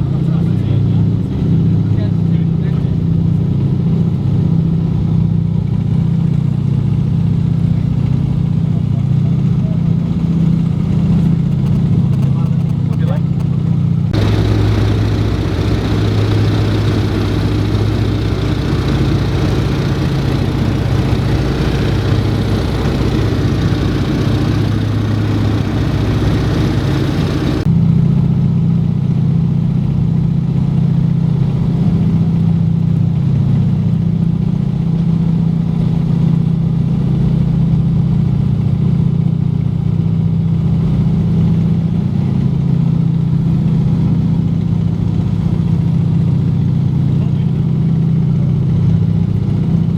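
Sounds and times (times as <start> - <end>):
radial aircraft engines droning: 14.2 - 27.7.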